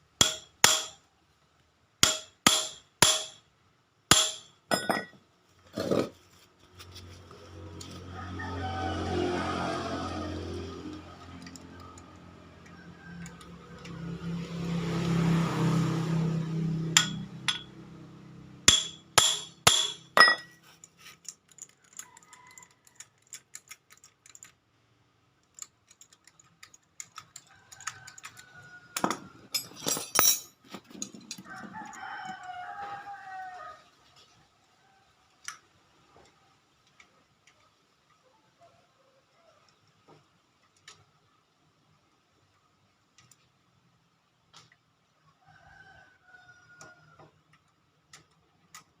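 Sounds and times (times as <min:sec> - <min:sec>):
rooster crowing: 0:07.6 - 0:14.4, 0:27.5 - 0:29.5, 0:31.4 - 0:34.0
sharp clanks or knocks: 0:17.0 - 0:17.7, 0:29.0 - 0:30.5.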